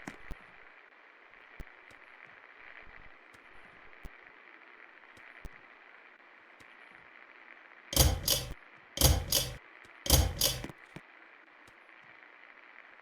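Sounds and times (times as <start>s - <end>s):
ceiling fan running: 8.0s - 10.7s
pull-chain switch clicks: 8.0s - 10.7s.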